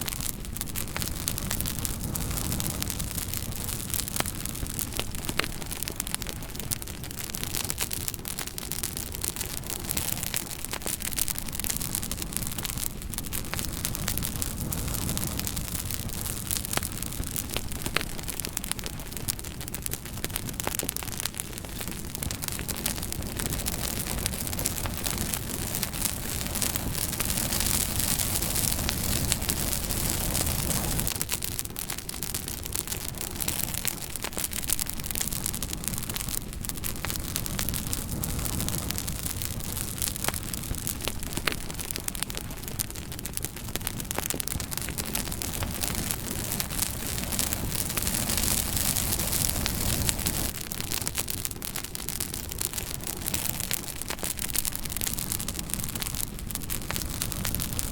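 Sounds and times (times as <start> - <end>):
low rushing of flames: 0.0 - 57.9
wood fire crackling and popping: 0.0 - 57.9.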